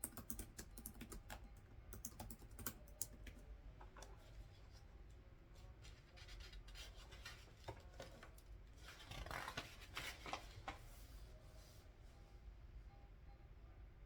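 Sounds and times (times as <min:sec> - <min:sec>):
paper rustling and crinkling: 0:05.8 - 0:11.1.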